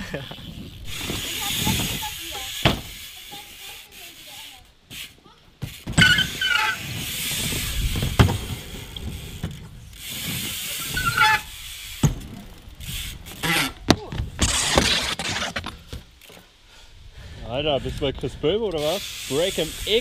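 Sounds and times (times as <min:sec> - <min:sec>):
bike tyres rolling: 0:00.0 - 0:16.8, 0:17.4 - 0:20.0
bike knocking on ramp: 0:02.6 - 0:03.0, 0:07.9 - 0:08.7
short squeak: 0:06.0 - 0:06.8, 0:10.8 - 0:11.5.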